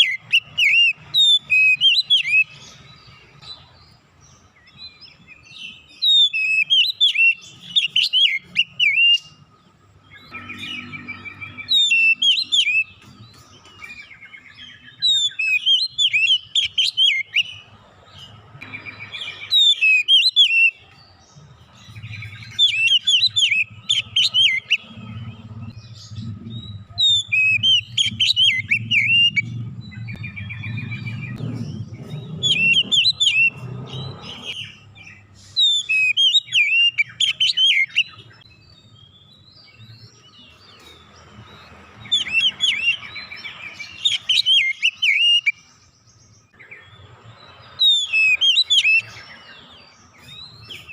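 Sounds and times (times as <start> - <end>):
bird singing varied whistles: 0.0 - 2.6, 5.8 - 9.4, 10.2 - 13.1, 13.8 - 17.6, 18.7 - 20.9, 22.0 - 24.9, 25.7 - 39.9, 42.0 - 45.6, 47.8 - 49.6.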